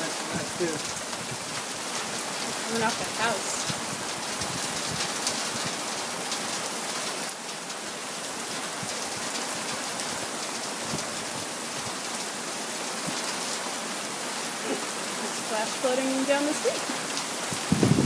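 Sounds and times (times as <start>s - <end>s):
raindrops ticking: 0.0s - 7.8s
heavy rain hissing: 0.0s - 18.0s.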